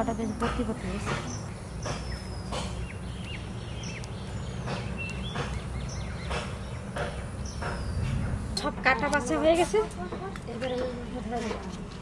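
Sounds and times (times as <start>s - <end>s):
bird chirps: 0.0s - 8.4s.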